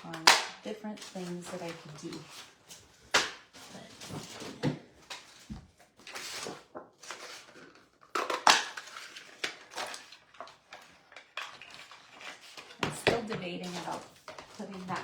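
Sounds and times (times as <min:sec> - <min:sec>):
clatter of cardstock pieces: 0:00.0 - 0:15.0
paper rustling and sliding: 0:01.0 - 0:08.0, 0:13.6 - 0:15.0.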